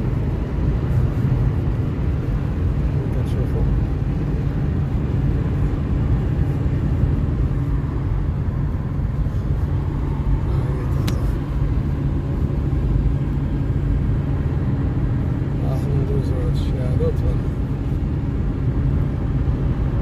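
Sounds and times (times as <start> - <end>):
car engine and tyres rumbling: 0.0 - 20.0
sharp click: 11.0 - 11.3.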